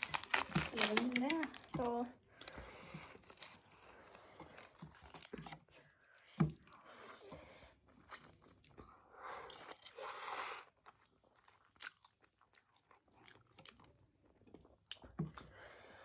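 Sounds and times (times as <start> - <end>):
person chewing and crunching food: 0.0 - 5.6, 10.6 - 16.0.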